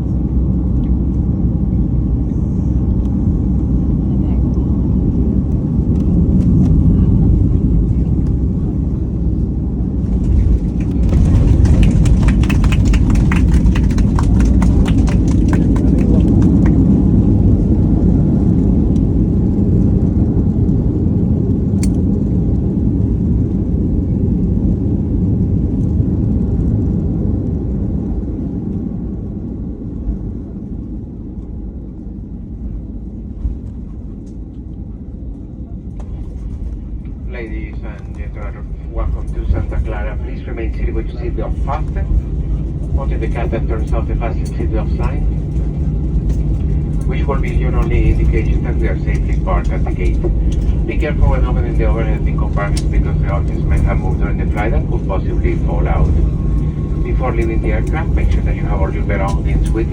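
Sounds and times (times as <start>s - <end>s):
airliner landing rumble: 0.0s - 59.9s
heavy cabin rattling: 9.4s - 17.2s.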